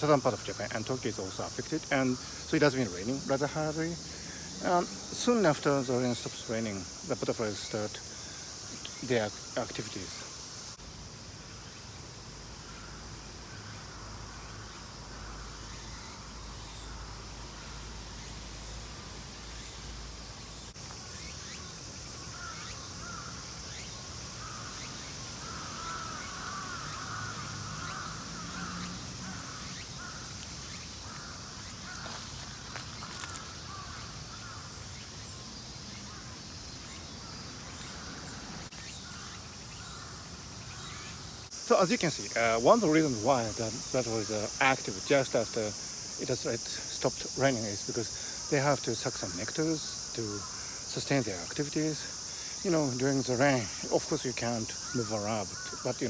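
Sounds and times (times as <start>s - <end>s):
high-pitched insect chorus: 0.0s - 56.0s
crows cawing: 22.2s - 23.5s, 24.4s - 34.9s, 39.0s - 41.0s, 50.4s - 50.8s, 54.7s - 56.0s.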